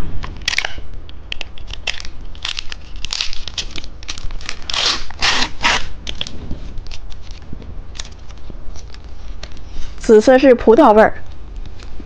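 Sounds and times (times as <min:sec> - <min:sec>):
plastic wrapper tearing: 0:00.4 - 0:09.7
plastic wrapper crinkling: 0:01.4 - 0:09.9.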